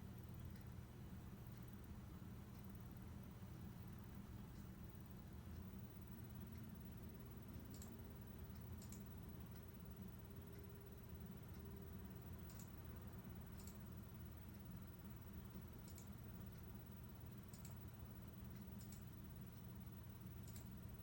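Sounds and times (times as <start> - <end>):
low steady hum: 0.0 - 21.0
faint sharp clicks: 15.6 - 16.7, 20.4 - 20.8.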